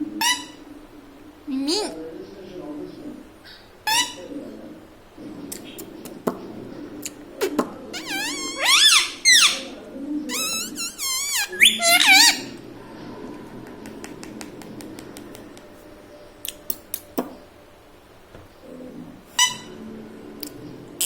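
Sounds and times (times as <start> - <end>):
parakeet warbling calls: 8.0 - 12.5.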